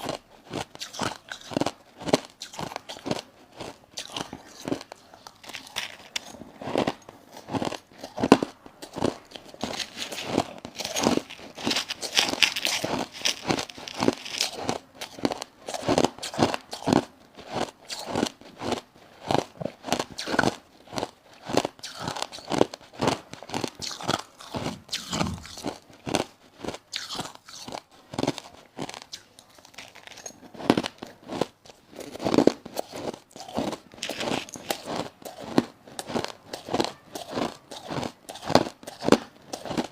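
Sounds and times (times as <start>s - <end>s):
crushed ice crunching: 4.0s - 7.8s, 8.9s - 15.3s, 32.2s - 39.9s.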